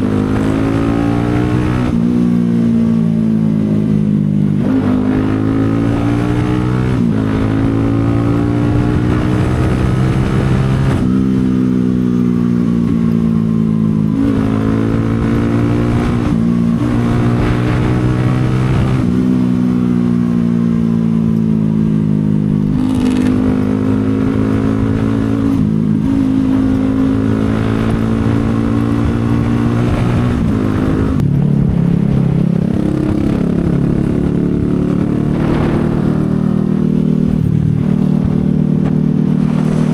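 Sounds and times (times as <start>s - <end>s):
motorcycle engine running: 0.0s - 39.9s
gear shifts: 22.6s - 24.8s.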